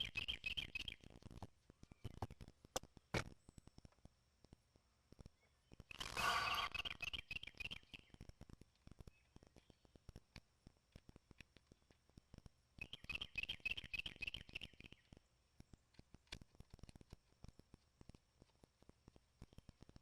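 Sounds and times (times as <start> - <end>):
scratchy squeaking: 5.9 - 7.0.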